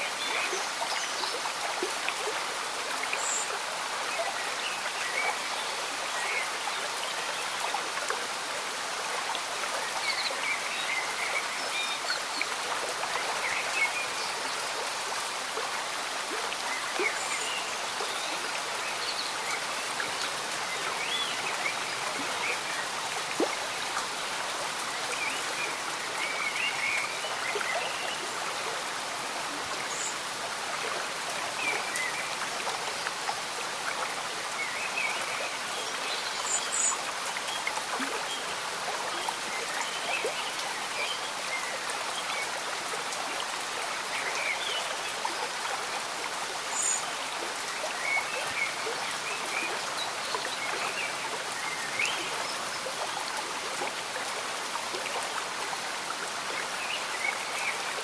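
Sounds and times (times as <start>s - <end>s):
gentle rain patter: 0.0s - 58.0s
stream bubbling and gurgling: 0.0s - 58.0s.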